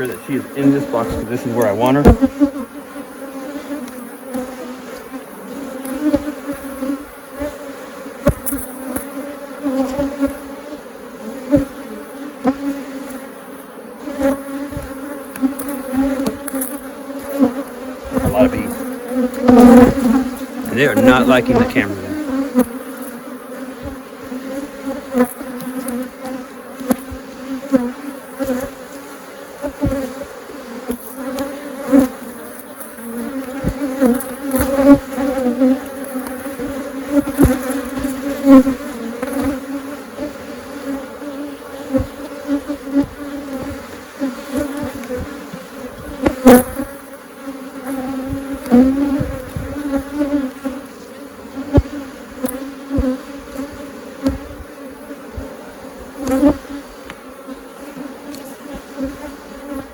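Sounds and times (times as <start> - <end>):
honeybees buzzing: 0.0 - 59.9.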